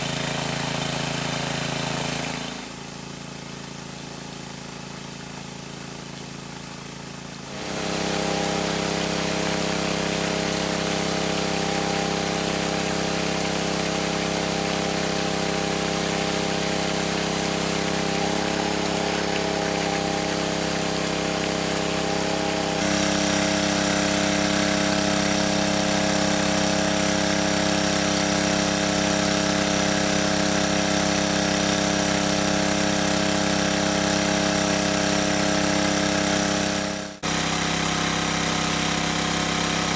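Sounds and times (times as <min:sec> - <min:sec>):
engine running: 0:07.0 - 0:39.9.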